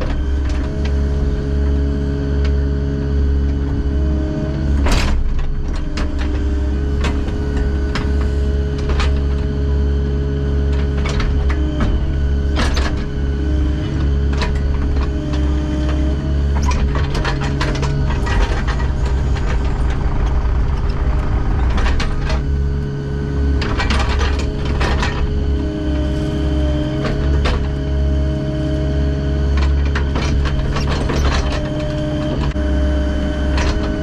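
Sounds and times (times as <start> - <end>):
heavy machinery diesel engine: 0.0 - 34.0
metallic clanking and rattling: 13.9 - 25.6, 29.5 - 32.6.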